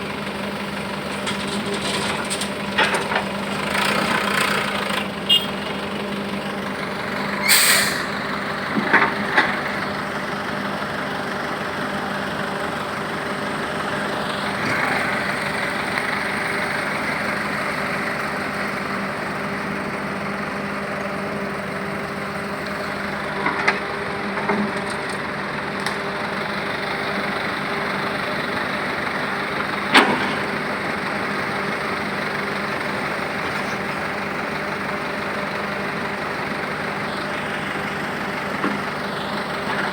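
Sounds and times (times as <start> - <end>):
heavy vehicle engine running: 0.0 - 39.9
short hisses: 7.4 - 8.2.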